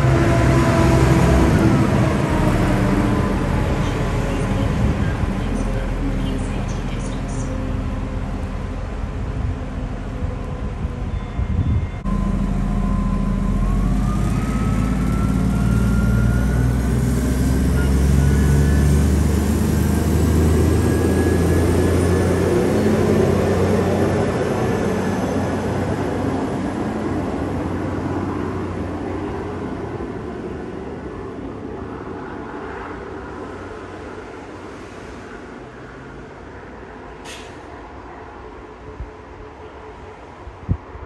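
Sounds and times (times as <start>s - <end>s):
diesel train rumble: 0.0s - 41.0s.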